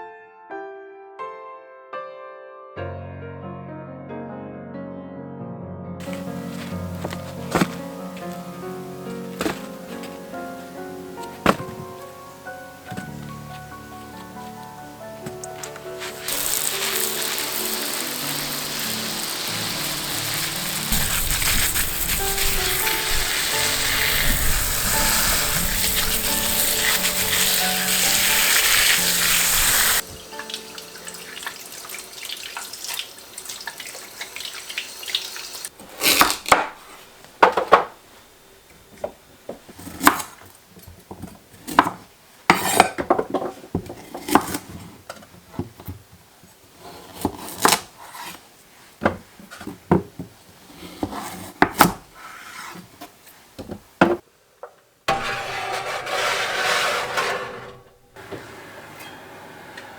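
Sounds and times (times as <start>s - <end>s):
water running: 6.0s - 35.7s
dishes and pots clinking: 55.1s - 58.2s.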